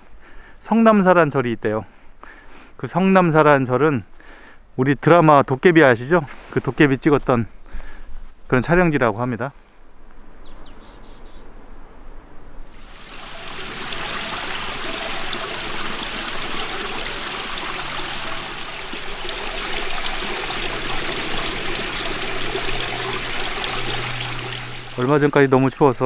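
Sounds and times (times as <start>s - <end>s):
bird chirp: 10.0s - 11.5s, 12.5s - 13.0s
small stream running: 12.6s - 26.0s.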